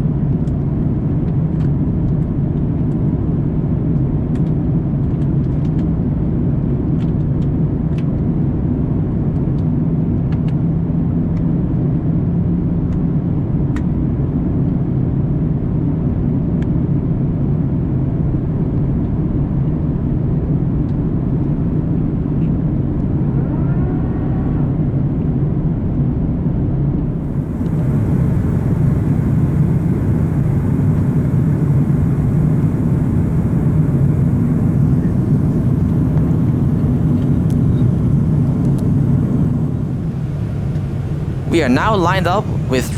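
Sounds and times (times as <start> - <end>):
airplane cabin rumble and hum: 27.1 - 42.9
hiss: 27.2 - 42.9.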